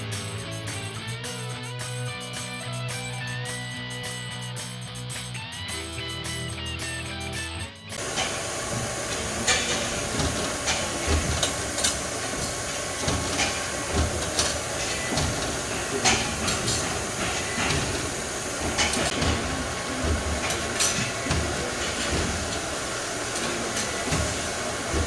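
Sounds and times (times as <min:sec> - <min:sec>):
hydraulic press hiss and hum: 0:08.0 - 0:25.0.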